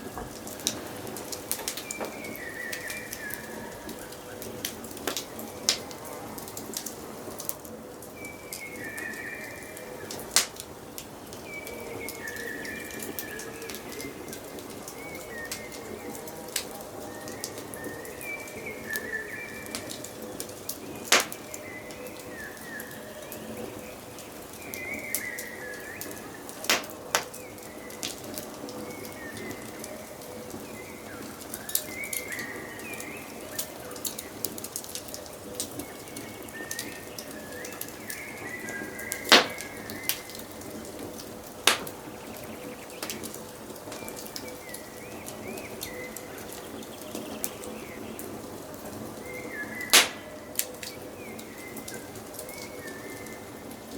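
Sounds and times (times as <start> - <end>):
loud crack of fire: 0.0 - 53.9
wood fire crackling: 0.0 - 53.9
birds calling: 17.2 - 28.2, 35.6 - 48.5, 49.2 - 53.7
loud fire pops: 20.9 - 21.6, 26.5 - 27.5, 39.0 - 40.4, 41.6 - 42.1, 49.8 - 50.9
birds whistling: 35.8 - 40.4.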